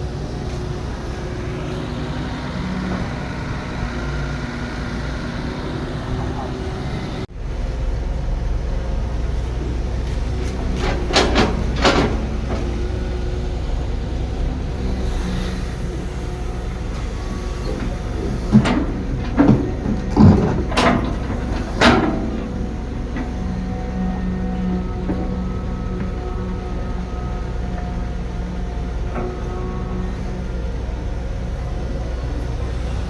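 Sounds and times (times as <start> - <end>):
diesel engine rumbling: 0.0 - 33.0
metallic clanks and knocks: 10.4 - 13.0, 17.7 - 23.6.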